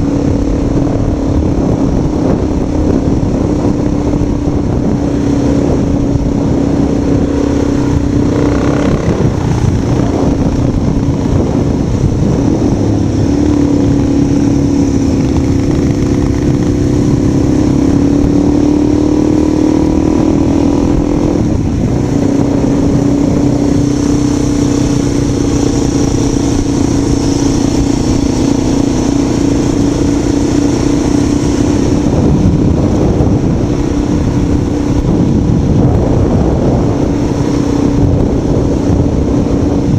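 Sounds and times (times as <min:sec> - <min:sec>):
rough wind noise: 0:00.0 - 0:39.9
vehicle engine running: 0:00.0 - 0:39.9.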